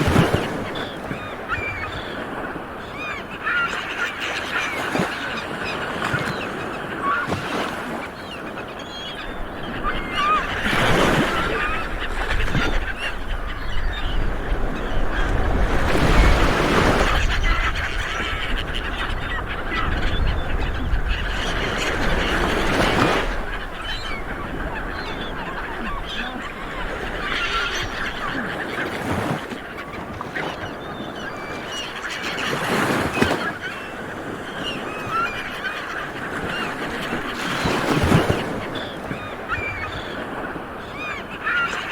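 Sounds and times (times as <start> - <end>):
seabirds squawking: 0.0 - 41.9.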